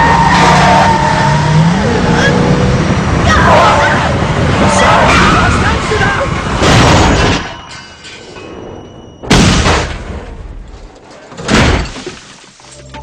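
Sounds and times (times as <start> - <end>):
heavy booming car crash impacts: 9.2 - 10.6, 11.4 - 12.2.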